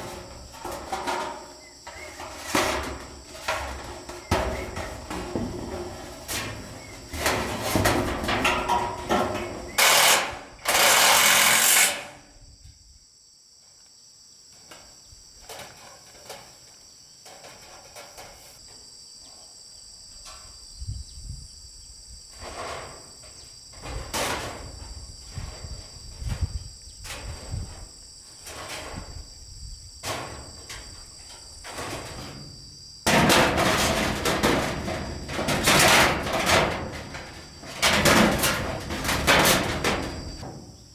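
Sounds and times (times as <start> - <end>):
knocking and clattering of wood: 0.0 - 11.4, 30.0 - 40.9
insects trilling: 0.0 - 40.9.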